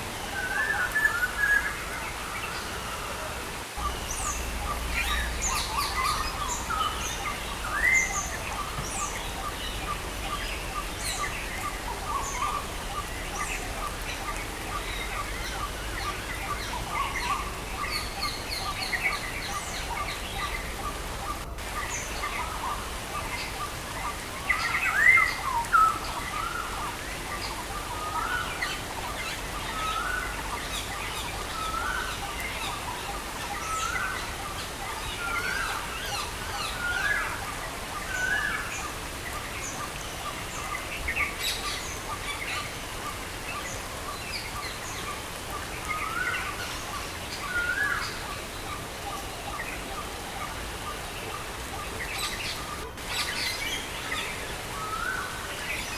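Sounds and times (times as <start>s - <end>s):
rain hiss: 0.0s - 55.9s
birds chirping: 3.5s - 13.2s, 14.8s - 26.7s.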